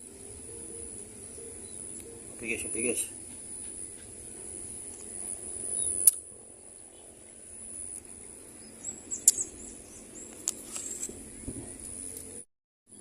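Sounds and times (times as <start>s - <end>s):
birds chirping: 0.0s - 13.0s
sharp clicks: 6.0s - 6.2s.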